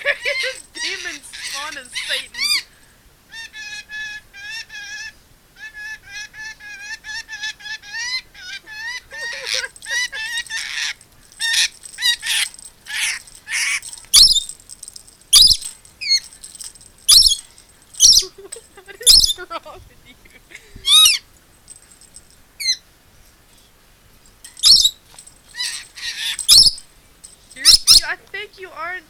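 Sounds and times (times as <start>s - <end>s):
parrot screeching: 0.0s - 2.7s, 3.3s - 14.5s, 17.1s - 18.3s, 19.0s - 19.4s, 20.8s - 21.2s, 24.6s - 26.8s
parrot chirping: 0.0s - 14.7s, 15.3s - 20.2s, 20.8s - 21.3s, 22.6s - 22.8s, 24.6s - 26.9s, 27.6s - 28.2s.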